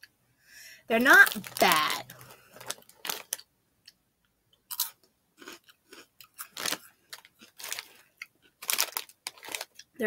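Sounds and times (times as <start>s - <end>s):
person chewing crunchy snacks: 1.2s - 3.4s, 4.7s - 10.0s.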